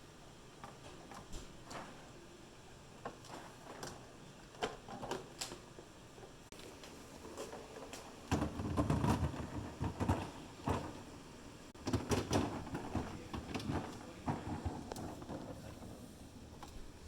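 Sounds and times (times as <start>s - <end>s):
food containers knocking and clattering: 7.2s - 11.1s, 11.8s - 16.0s.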